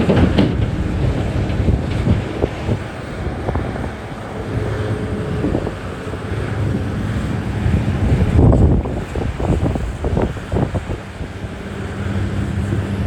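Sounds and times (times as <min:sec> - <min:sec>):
short knocks: 0:00.0 - 0:02.4
diesel machinery rumbling: 0:00.0 - 0:13.0
wind buffeting microphone: 0:00.0 - 0:13.0.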